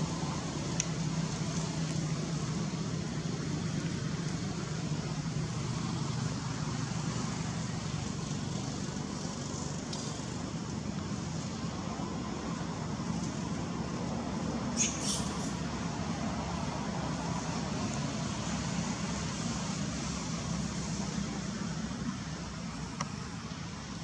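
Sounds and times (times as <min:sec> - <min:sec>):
even hiss: 0:14.4 - 0:21.8.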